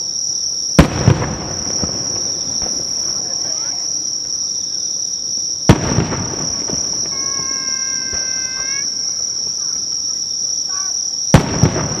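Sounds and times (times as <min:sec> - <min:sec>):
firework bursting: 0:00.0 - 0:12.0
high insect trill: 0:00.0 - 0:12.0.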